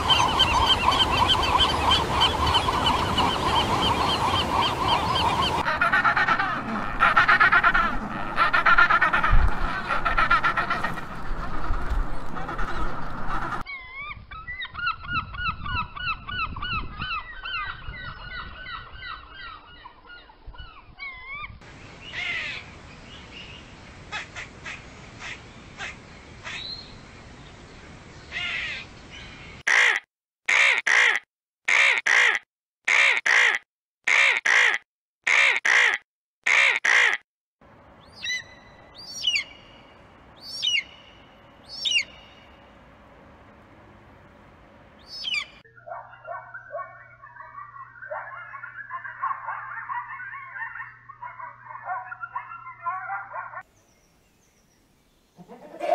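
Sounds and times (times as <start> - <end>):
gull calls: 0.0 - 11.1, 41.7 - 42.4, 45.0 - 53.6.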